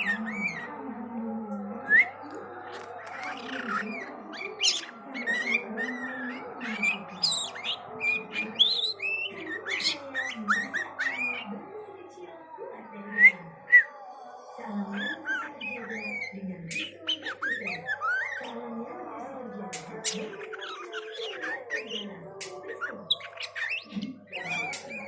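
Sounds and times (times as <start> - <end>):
bird whistling and chirping: 0.0 - 0.7, 1.8 - 11.5, 14.8 - 18.6, 19.8 - 25.0.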